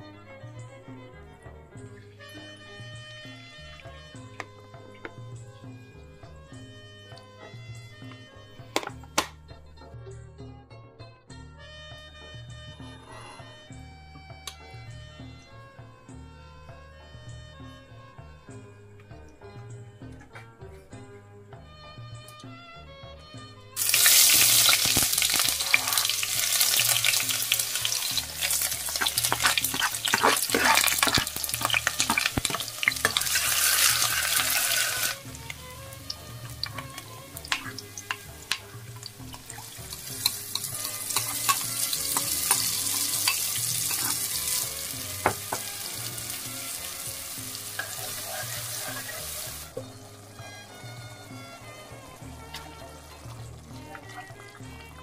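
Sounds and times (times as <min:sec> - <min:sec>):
utensil stirring knocks: 0:23.8 - 0:51.8
food sizzling in hot oil: 0:23.8 - 0:54.4.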